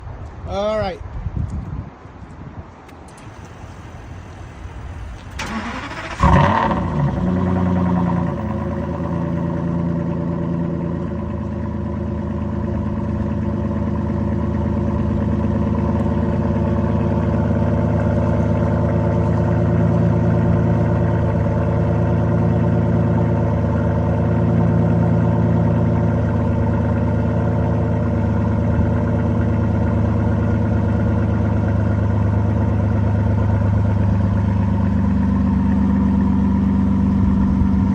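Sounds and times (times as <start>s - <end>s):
car engine starting and idling: 2.8s - 37.9s
starter cranking: 5.3s - 6.7s.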